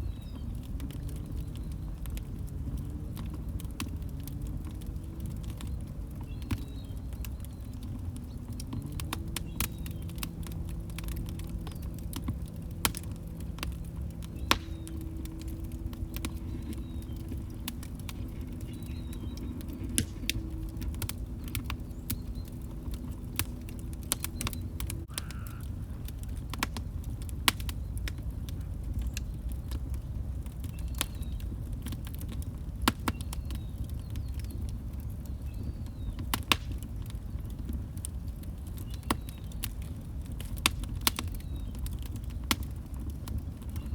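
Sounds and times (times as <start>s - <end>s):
log fire crackling: 0.0s - 43.9s.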